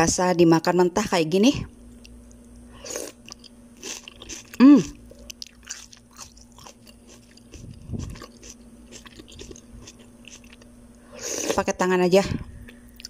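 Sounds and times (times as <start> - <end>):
person chewing raw onion: 2.0 - 11.7.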